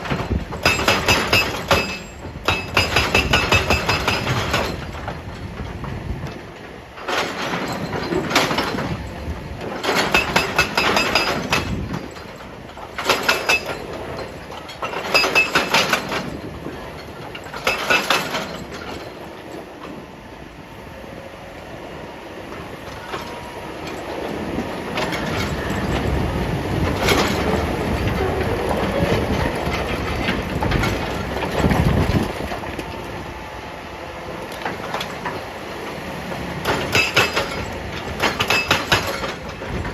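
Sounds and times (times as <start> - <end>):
hydraulic breaker hammering rock: 0.0 - 5.6, 7.0 - 19.1, 36.6 - 39.9
excavator engine running: 0.0 - 20.3, 21.2 - 39.9.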